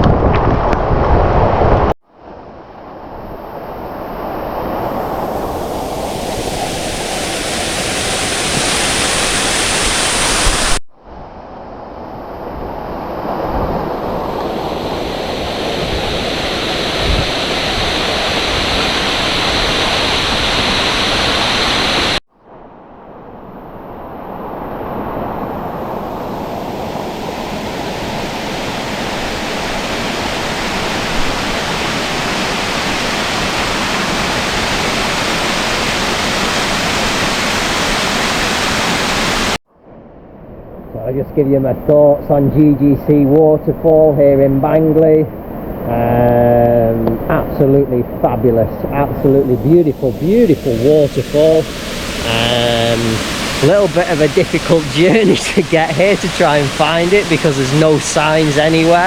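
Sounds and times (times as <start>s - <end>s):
waterfall roaring: 4.7s - 10.8s, 14.0s - 22.2s, 25.8s - 39.6s, 46.0s - 59.0s.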